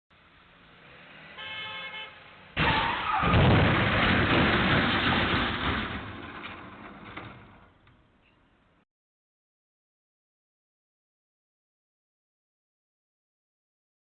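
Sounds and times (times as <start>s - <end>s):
car horn honking: 1.4s - 3.0s.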